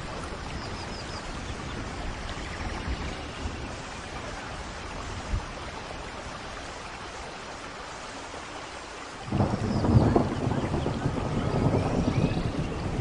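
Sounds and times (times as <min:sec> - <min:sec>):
steady rain falling: 0:00.0 - 0:13.0
deep thunder rumble: 0:09.2 - 0:13.0.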